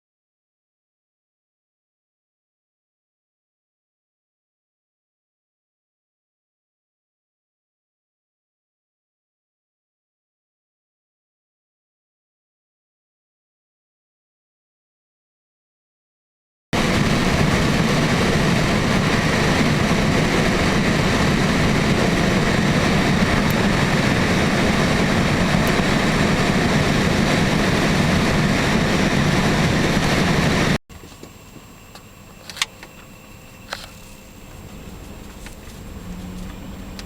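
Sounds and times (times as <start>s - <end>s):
vehicle engine and road noise: 16.8s - 31.3s, 32.3s - 37.0s.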